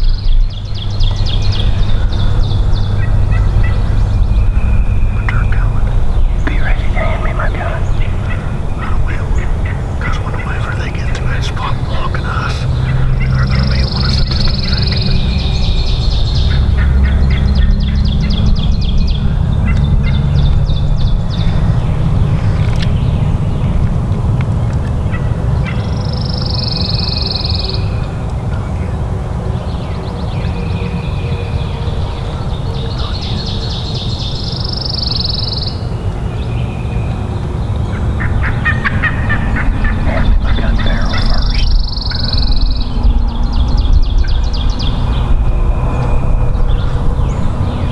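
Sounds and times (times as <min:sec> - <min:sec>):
bird trilling: 0:00.0 - 0:23.2, 0:37.9 - 0:47.9
wild turkey calling: 0:00.0 - 0:23.2, 0:37.9 - 0:43.1
heavy low rumble: 0:00.0 - 0:25.6, 0:38.1 - 0:47.9.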